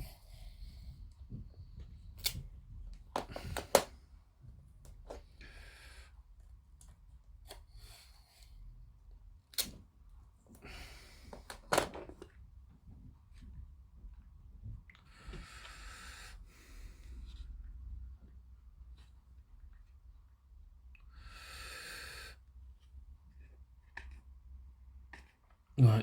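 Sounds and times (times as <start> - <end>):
plastic parts clicking and tapping: 3.1 - 3.9.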